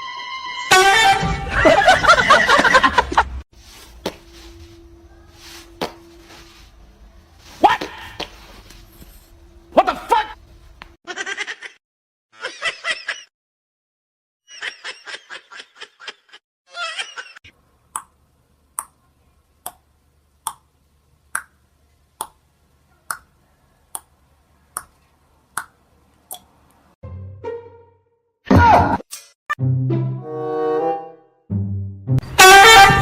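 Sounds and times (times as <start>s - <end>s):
snickering laughter: 1.5s - 3.4s, 11.1s - 11.8s, 12.4s - 13.3s, 14.5s - 17.4s
faint low hum: 3.8s - 7.5s.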